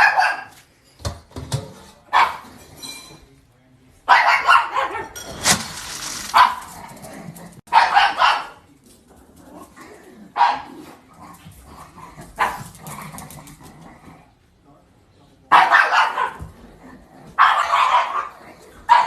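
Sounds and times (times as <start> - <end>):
dog barking: 0.0 - 0.6, 2.1 - 2.5, 4.1 - 5.1, 6.2 - 6.7, 7.7 - 8.6, 10.4 - 10.8, 12.4 - 12.7, 15.5 - 16.5, 17.4 - 19.0.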